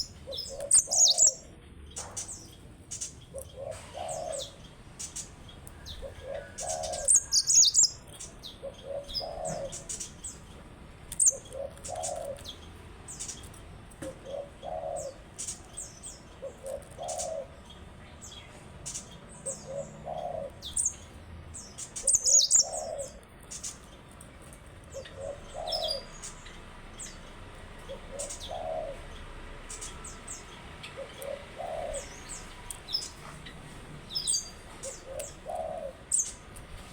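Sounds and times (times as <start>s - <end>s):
canary chirping and singing: 0.0s - 13.6s, 14.4s - 36.9s
low cooing: 3.3s - 4.6s, 6.0s - 8.0s, 8.6s - 10.0s, 14.0s - 15.3s, 16.4s - 17.6s, 19.4s - 20.8s, 24.9s - 26.2s, 27.9s - 29.1s, 30.9s - 32.4s, 34.8s - 36.2s.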